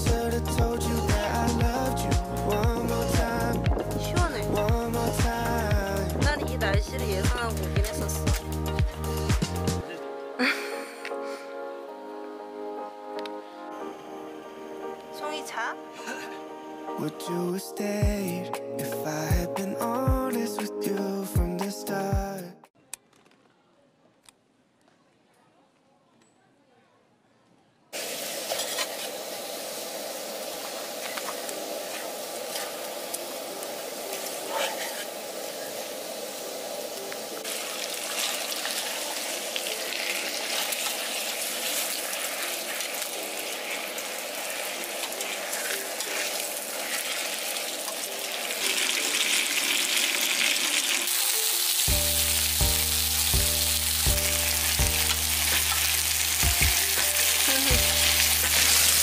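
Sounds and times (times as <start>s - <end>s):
food sizzling in hot oil: 0.0s - 9.6s, 28.0s - 59.0s
background music with steady beat: 0.0s - 22.8s, 51.3s - 59.0s.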